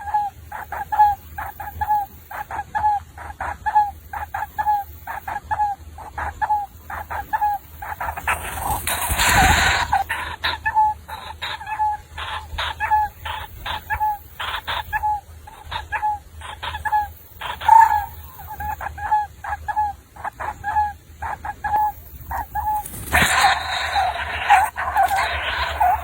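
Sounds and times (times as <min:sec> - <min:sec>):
bird calling hooked notes: 0:00.0 - 0:26.0
scratchy noises: 0:08.0 - 0:10.4, 0:22.7 - 0:26.0.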